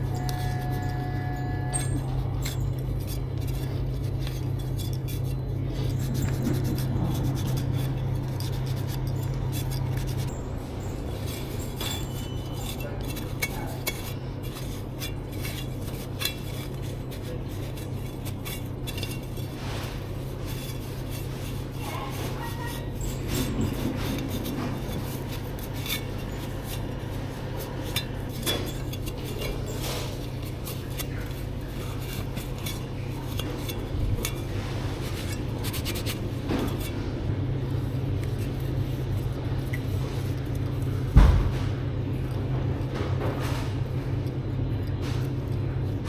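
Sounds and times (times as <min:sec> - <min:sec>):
glass and plastic clinks: 0:00.0 - 0:19.5
rubbing and scrubbing: 0:00.0 - 0:41.7.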